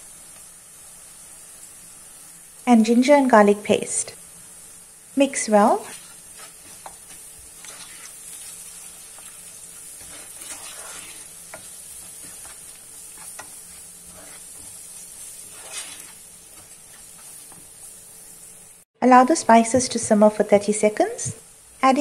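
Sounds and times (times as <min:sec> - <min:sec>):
onions and spices sizzling in oil: 0:00.0 - 0:22.0
wooden spoon scraping a pot: 0:05.6 - 0:18.7.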